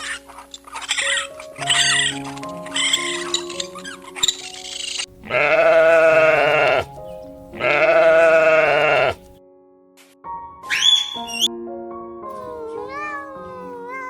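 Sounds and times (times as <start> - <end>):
wavering sheep or goat bleats: 5.2 - 6.9, 7.5 - 9.2.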